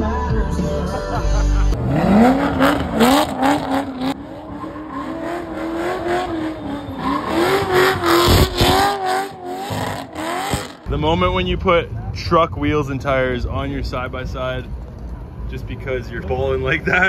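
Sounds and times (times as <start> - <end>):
car engine revving high: 1.8 - 10.9
tyre squeal: 4.4 - 10.8.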